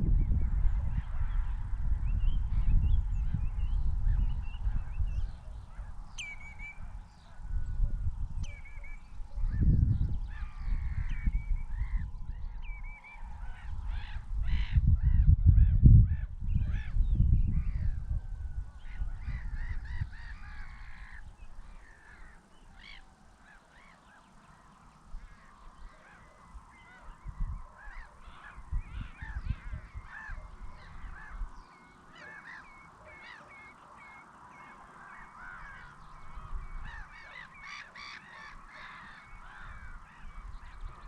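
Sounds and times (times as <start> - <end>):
loud low rumble in gusts: 0.0 - 6.1, 6.8 - 21.0
birds calling: 0.2 - 18.0, 18.6 - 41.0.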